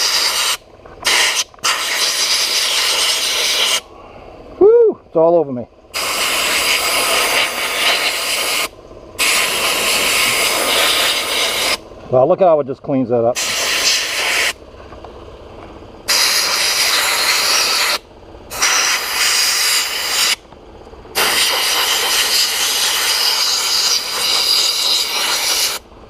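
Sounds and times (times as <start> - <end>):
sandblast gun hissing: 0.0 - 3.9, 5.9 - 11.8, 13.4 - 14.6, 16.1 - 20.4, 21.2 - 25.8.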